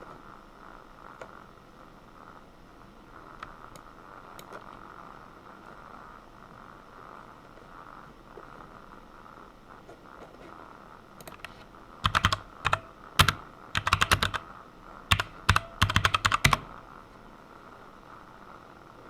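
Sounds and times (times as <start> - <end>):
typing on computer keyboard: 11.2 - 14.5, 15.1 - 16.8.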